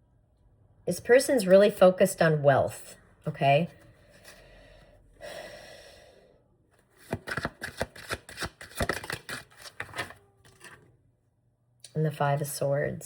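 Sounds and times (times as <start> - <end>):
cards shuffling hiss: 7.0 - 10.2.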